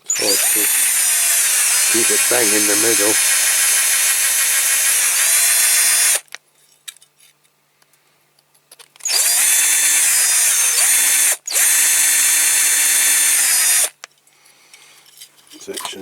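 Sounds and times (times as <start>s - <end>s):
electric drill drilling metal: 0.0s - 6.3s, 9.0s - 14.1s.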